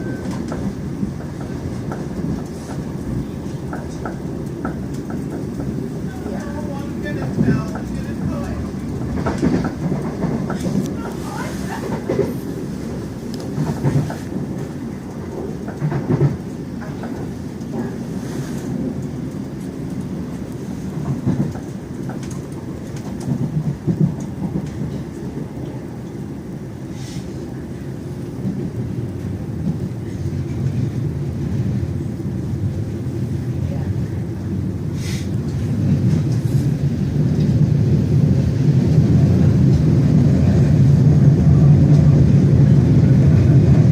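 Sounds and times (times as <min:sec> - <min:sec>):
wheels clattering over rail joints: 0:00.0 - 0:18.0
train rumble inside carriage: 0:00.0 - 0:43.9.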